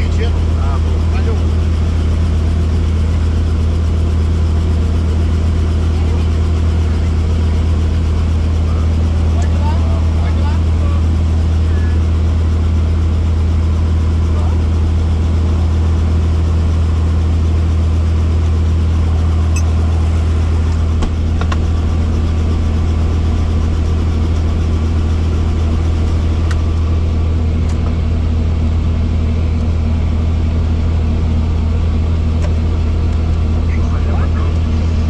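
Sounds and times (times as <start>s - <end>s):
helicopter engine and rotor: 0.0s - 35.0s.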